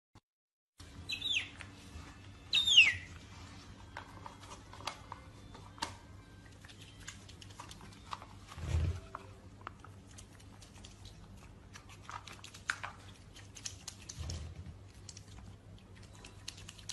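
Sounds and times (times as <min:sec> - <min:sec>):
chewing clicks and crunches: 0:06.4 - 0:08.2, 0:09.6 - 0:16.9.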